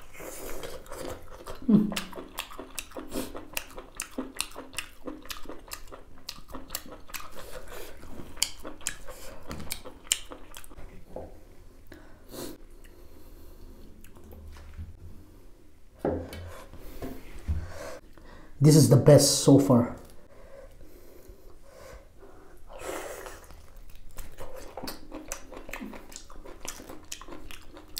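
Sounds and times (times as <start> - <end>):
person chewing with mouth clicks: 0.0 - 10.8, 13.8 - 14.6, 22.7 - 27.9.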